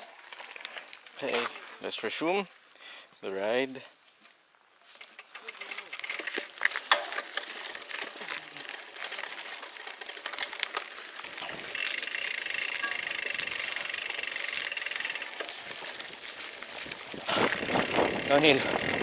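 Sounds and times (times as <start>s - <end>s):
bike rattling on trail: 0.0s - 2.7s, 4.8s - 19.0s
freewheel hub clicking: 5.0s - 16.2s, 16.8s - 19.0s.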